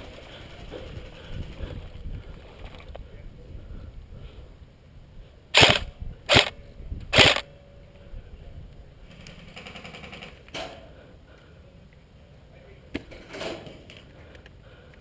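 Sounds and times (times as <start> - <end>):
airsoft guns firing bursts: 5.6 - 7.4, 9.3 - 10.4
distant automatic fire rattle: 5.6 - 7.4, 9.1 - 10.4.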